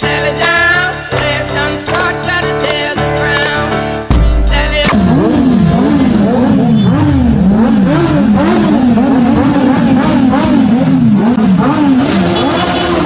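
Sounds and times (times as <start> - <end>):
motorcycle engine revving: 4.8 - 13.0.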